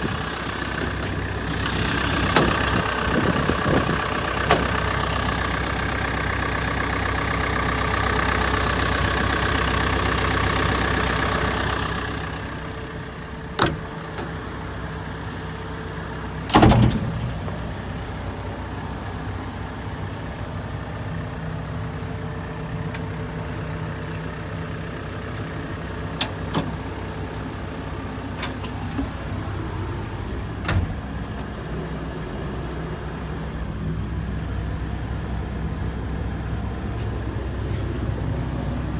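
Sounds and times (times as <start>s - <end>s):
excavator diesel engine idling: 0.0s - 38.9s.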